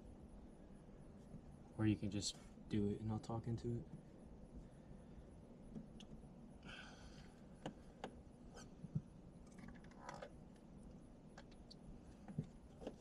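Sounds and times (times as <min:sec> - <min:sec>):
faint clicks and taps: 0:07.6 - 0:13.0.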